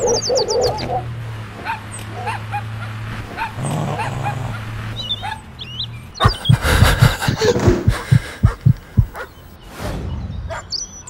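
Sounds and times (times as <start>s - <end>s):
car engine running: 0.0s - 9.2s
animal yelps and whimpers: 3.4s - 5.4s, 6.2s - 6.6s.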